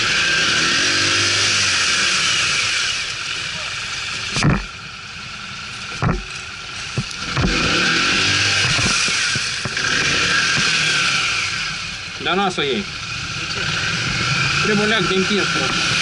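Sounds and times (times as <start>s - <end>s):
atv engines running: 0.0s - 16.0s
sharp knocks: 6.0s - 6.3s.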